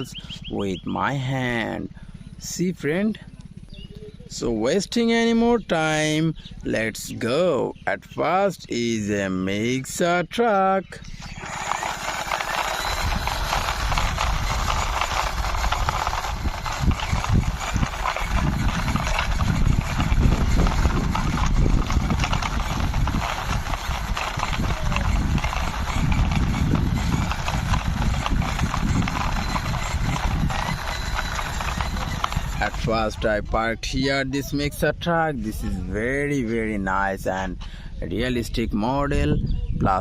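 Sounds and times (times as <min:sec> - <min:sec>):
low rumble: 0:11.0 - 0:34.0
toy truck wheels clattering: 0:11.1 - 0:33.6.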